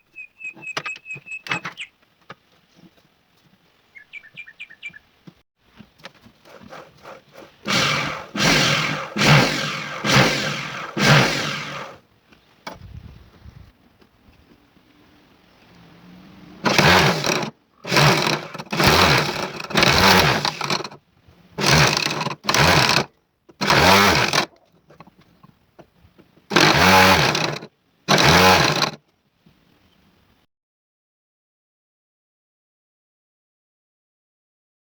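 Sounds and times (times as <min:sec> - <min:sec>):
power tool short bursts: 0:07.7 - 0:12.0, 0:16.6 - 0:21.0, 0:21.6 - 0:24.5, 0:26.5 - 0:29.0.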